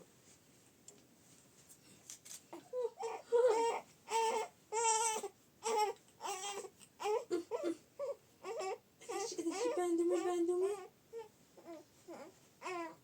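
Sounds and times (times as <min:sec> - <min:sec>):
small child crying: 0:02.6 - 0:13.0.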